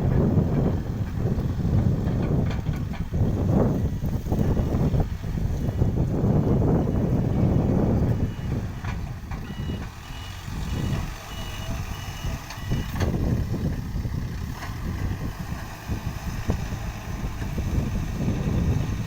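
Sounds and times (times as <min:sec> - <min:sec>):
engine rumble: 0:00.0 - 0:19.0
reversing alarm beeping: 0:06.4 - 0:13.1.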